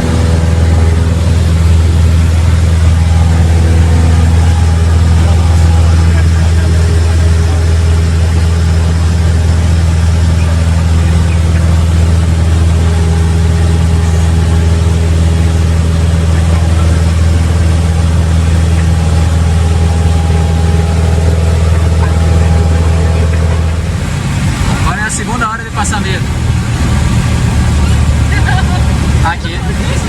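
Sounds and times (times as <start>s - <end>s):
propeller plane engine drone: 0.0s - 30.0s.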